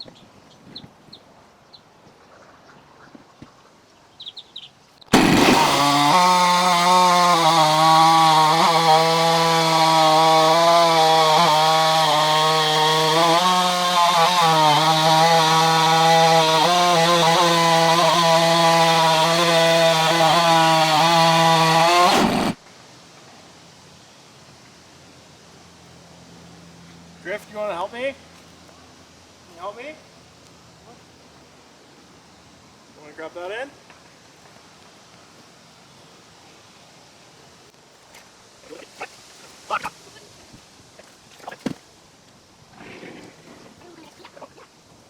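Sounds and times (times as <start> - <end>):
chainsaw cutting log at full throttle: 5.1 - 22.6.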